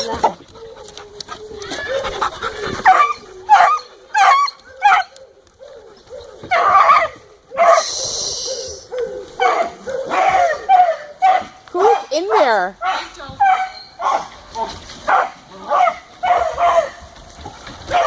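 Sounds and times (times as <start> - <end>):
small dogs barking and yipping: 0.0 - 18.0.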